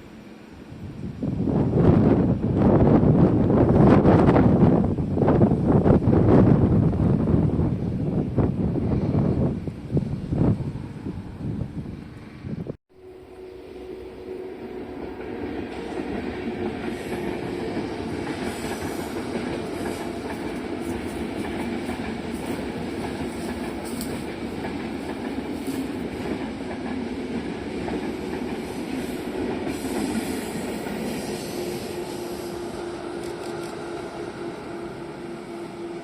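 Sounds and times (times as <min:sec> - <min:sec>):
train wheels on rails: 0:13.3 - 0:36.0.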